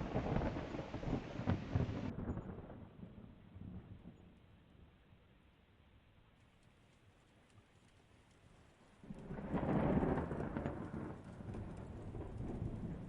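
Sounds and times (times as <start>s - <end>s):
thunder clap and rumble: 0.0s - 4.1s, 9.1s - 13.0s.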